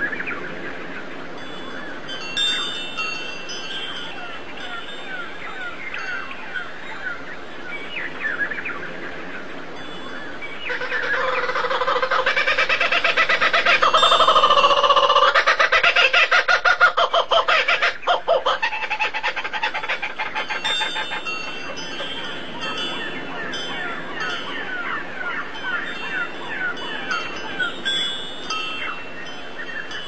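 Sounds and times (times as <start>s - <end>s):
birds chirping: 0.0s - 30.0s
long pitched bird call: 10.1s - 27.9s.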